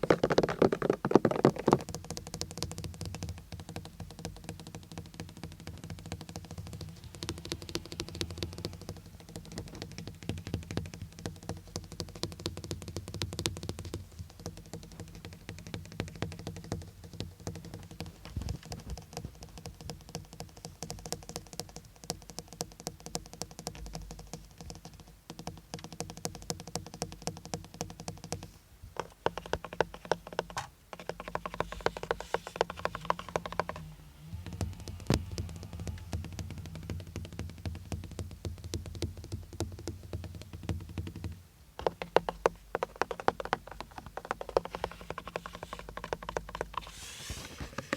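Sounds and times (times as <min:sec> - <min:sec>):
rapid tapping on car surfaces: 0:00.0 - 0:47.0
steady low hum: 0:31.4 - 0:41.8.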